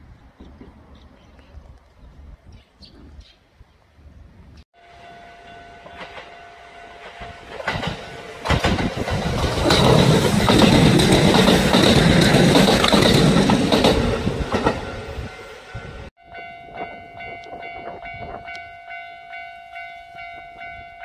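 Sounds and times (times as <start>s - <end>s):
electric train whine: 4.8s - 21.0s
wheels clattering over rail joints: 7.0s - 15.0s.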